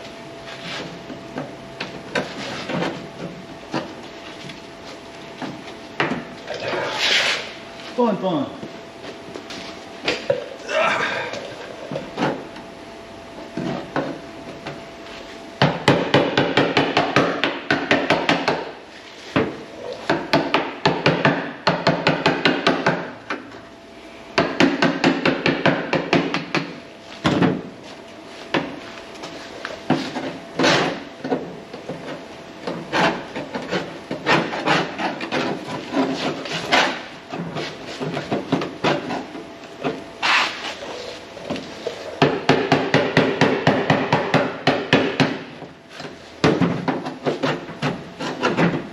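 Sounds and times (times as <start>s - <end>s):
hand tools scraping sheet metal: 32.9s - 39.4s, 47.0s - 48.8s.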